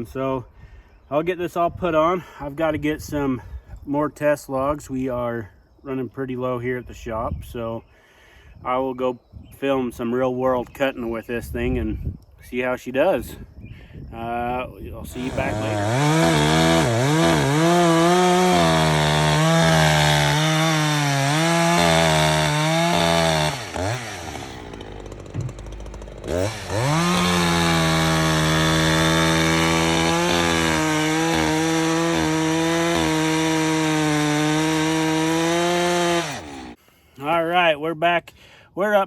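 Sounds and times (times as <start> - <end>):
chainsaw running: 15.1 - 36.8.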